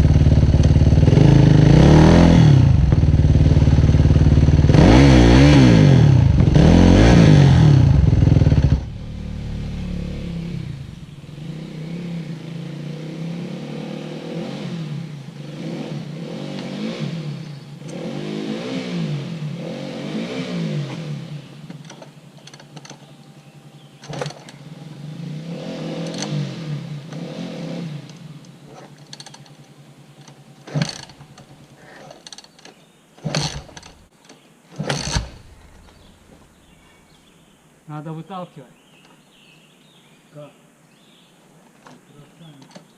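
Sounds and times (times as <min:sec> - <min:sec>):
dirt bike engine revving: 0:00.0 - 0:21.6, 0:23.7 - 0:32.3, 0:33.2 - 0:34.1, 0:34.7 - 0:36.1.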